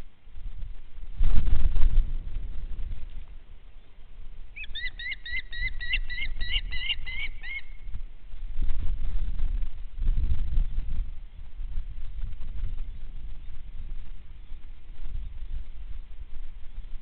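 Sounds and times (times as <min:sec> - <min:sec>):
small bird chirping: 0:04.6 - 0:07.8.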